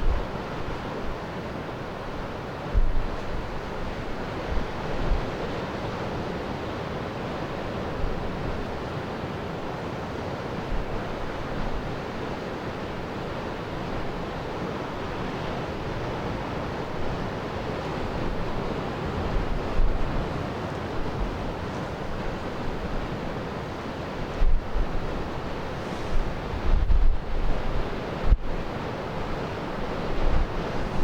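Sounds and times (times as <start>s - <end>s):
wind buffeting microphone: 0.0s - 1.2s, 2.7s - 5.4s, 15.8s - 23.5s, 24.2s - 31.0s
surf: 0.0s - 31.0s
wind: 0.0s - 31.0s.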